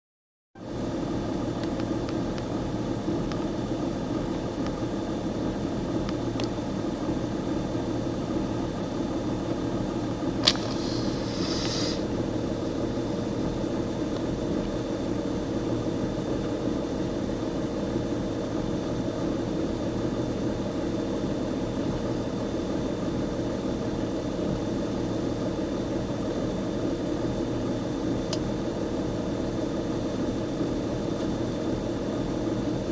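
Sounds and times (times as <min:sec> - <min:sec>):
sharp click: 0:10.4 - 0:11.8.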